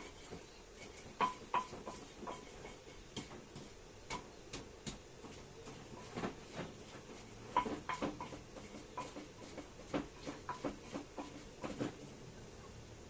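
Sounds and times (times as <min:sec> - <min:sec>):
kitchen utensils knocking and clinking: 0:00.0 - 0:04.3, 0:07.4 - 0:12.0.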